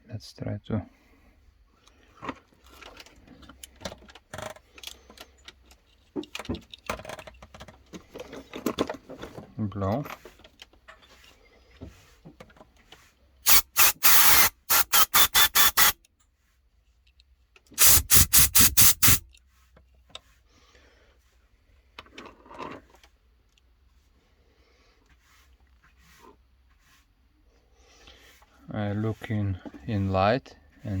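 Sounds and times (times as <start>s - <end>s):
compressed air hissing bursts: 13.5s - 16.0s, 17.8s - 19.2s.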